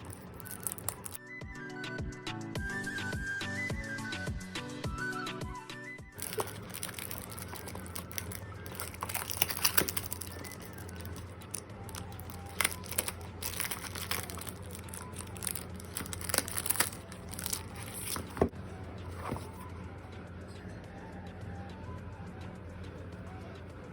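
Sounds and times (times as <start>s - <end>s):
packaging crinkling and tearing: 0.0s - 1.2s, 6.2s - 18.5s.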